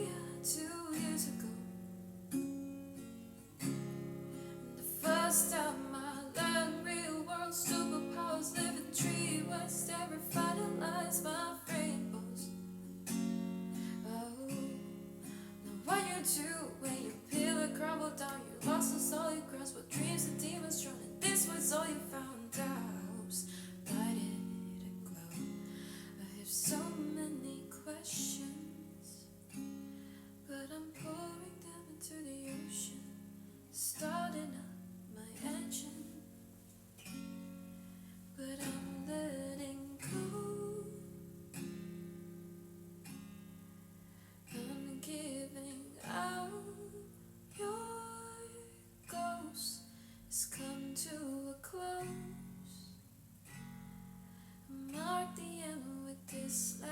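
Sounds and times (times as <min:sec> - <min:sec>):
acoustic guitar strumming chords: 0:00.0 - 0:27.4.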